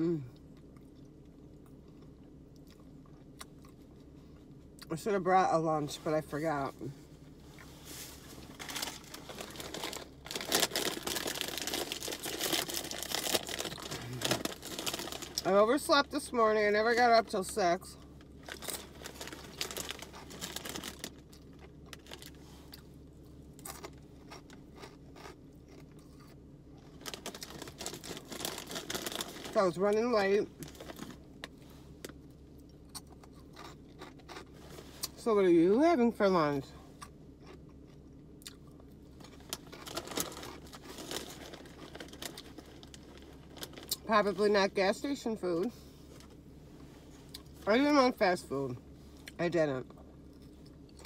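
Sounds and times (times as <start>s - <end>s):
crunching and chewing snacks: 0.0s - 5.0s, 8.4s - 16.4s, 17.0s - 35.3s, 36.9s - 44.2s, 49.1s - 51.0s
person chewing food: 0.3s - 4.5s, 21.0s - 28.5s, 31.4s - 35.1s, 37.0s - 39.9s.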